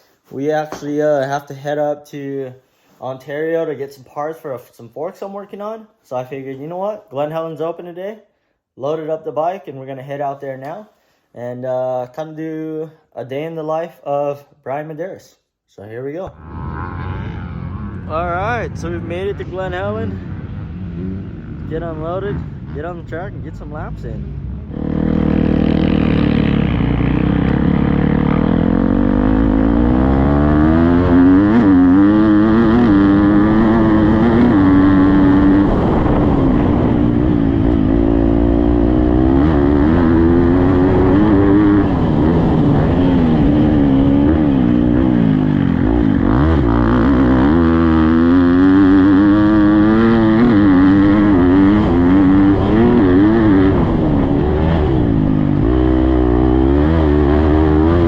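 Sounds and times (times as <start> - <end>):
motocross bike engine revving: 16.3 - 58.0.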